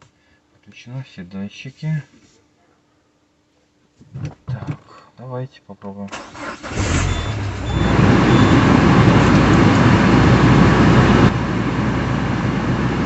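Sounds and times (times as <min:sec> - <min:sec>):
car engine idling: 0:06.2 - 0:13.0.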